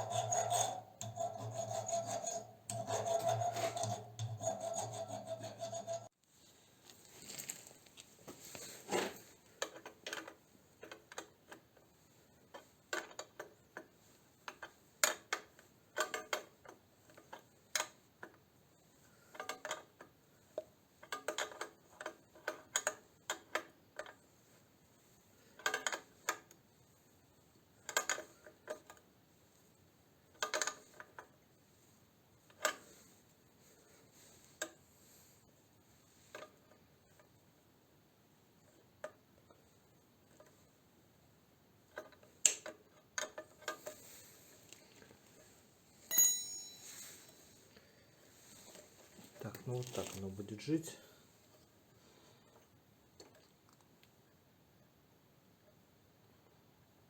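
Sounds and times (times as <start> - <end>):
metal tools clinking: 46.1 - 47.4.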